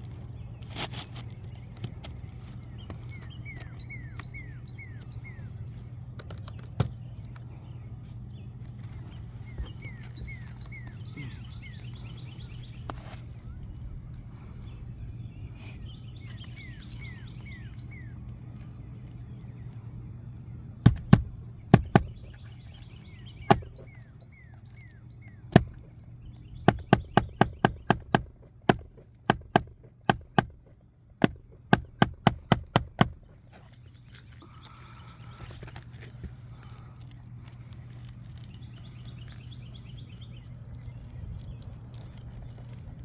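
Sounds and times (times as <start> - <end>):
steady low hum: 0.0 - 43.0
bird chirps: 2.6 - 18.3, 19.0 - 28.3
sharp loud knocks: 20.9 - 22.4, 23.5 - 23.9, 25.5 - 26.0, 26.6 - 33.4.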